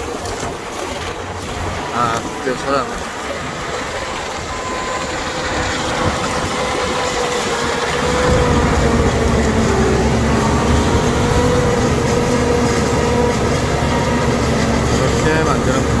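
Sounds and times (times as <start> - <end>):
farm machine engine drone: 1.6 - 16.0.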